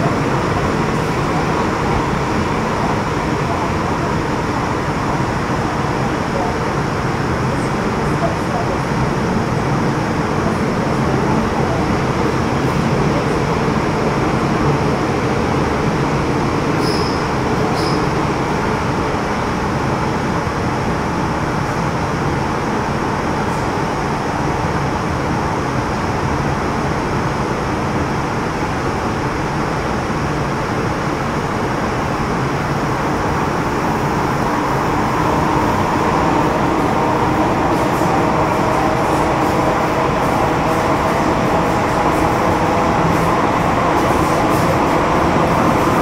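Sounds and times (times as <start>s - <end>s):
train wheels and motors rumbling: 0.0s - 46.0s.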